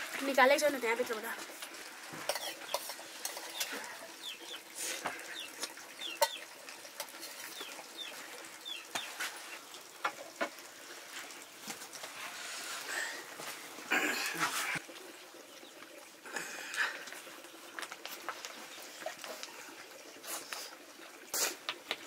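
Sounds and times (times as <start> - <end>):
birds chirping: 2.3 - 6.6, 7.3 - 9.2.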